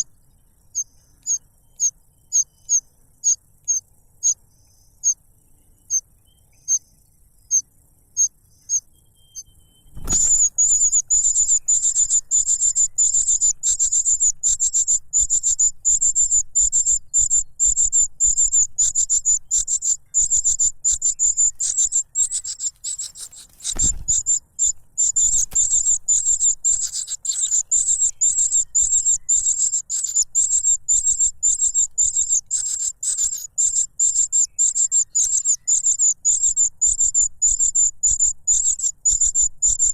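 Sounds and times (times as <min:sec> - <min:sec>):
chick chirping: 0:09.9 - 0:39.9
dull thumps: 0:23.2 - 0:24.3.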